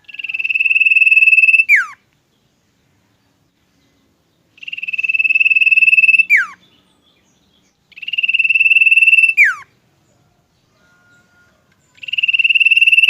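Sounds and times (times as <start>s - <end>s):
bird trilling: 0.0s - 2.0s, 4.5s - 6.8s, 7.9s - 9.8s, 10.8s - 13.0s.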